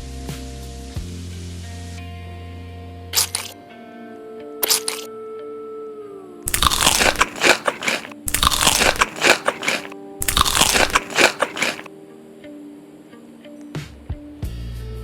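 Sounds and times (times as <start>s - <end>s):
crisp food crunching: 3.2s - 3.5s, 4.6s - 5.0s, 6.5s - 11.9s.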